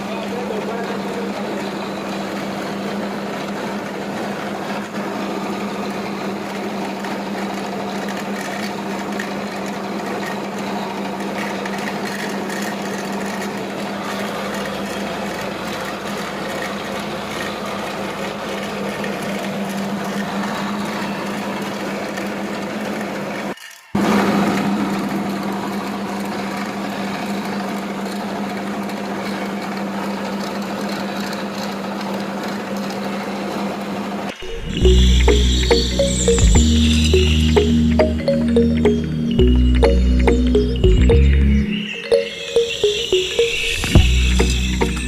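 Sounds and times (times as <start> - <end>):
small motor whirring and rattling: 0.4 - 34.4.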